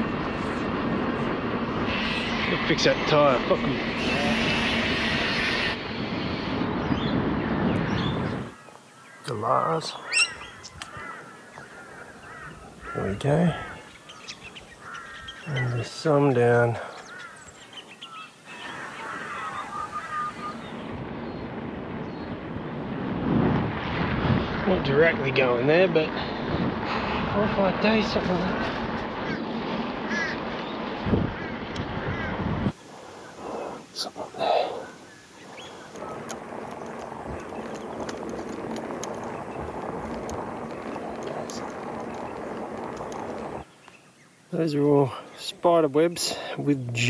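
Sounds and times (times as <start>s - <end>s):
wind and riding noise: 0.0s - 47.0s
parrots squawking: 9.9s - 15.6s, 17.0s - 20.9s.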